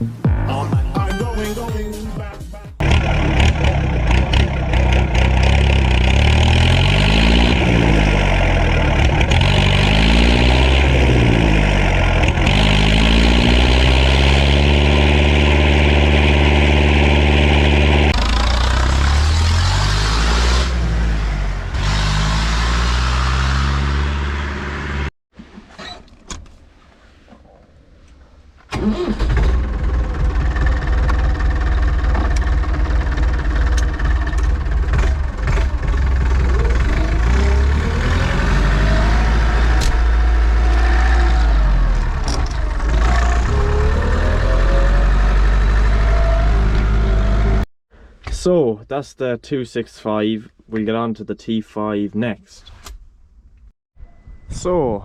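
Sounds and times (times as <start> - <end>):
tractor diesel engine revving: 2.8 - 25.1, 28.7 - 47.7.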